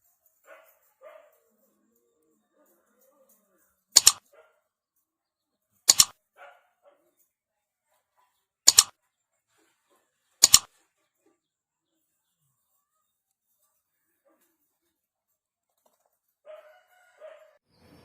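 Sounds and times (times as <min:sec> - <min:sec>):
dog barking: 0:00.4 - 0:01.7, 0:04.0 - 0:04.8, 0:06.3 - 0:07.2, 0:16.4 - 0:17.6.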